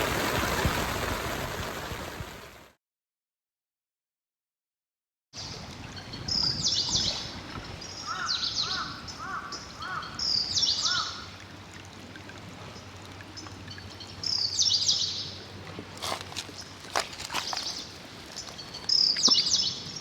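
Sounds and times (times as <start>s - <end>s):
songbirds singing: 5.4s - 11.3s, 12.8s - 15.4s, 16.0s - 20.0s.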